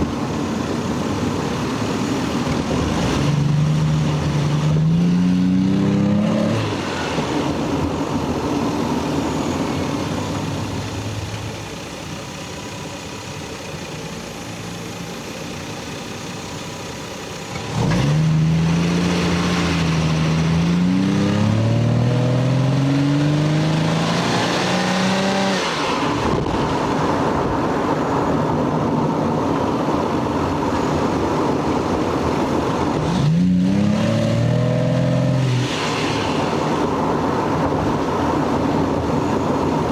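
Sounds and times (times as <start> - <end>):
car engine accelerating: 0.0 - 13.0, 17.4 - 27.4, 31.8 - 37.8.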